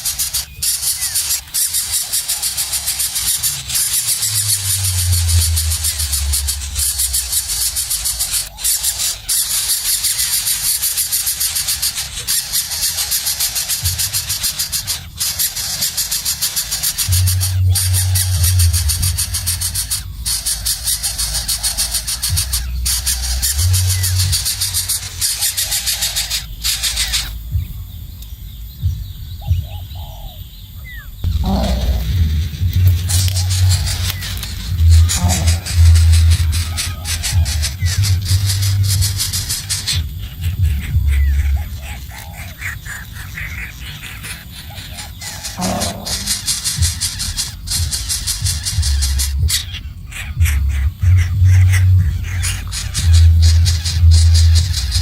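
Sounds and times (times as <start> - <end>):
nestling birds cheeping: 0.0 - 55.0
low rumble: 3.4 - 8.5, 17.0 - 25.2, 26.2 - 43.4, 45.5 - 55.0.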